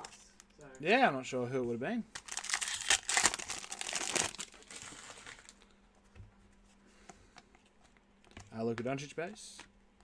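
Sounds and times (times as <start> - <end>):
plastic wrapper crinkling: 2.2 - 5.7.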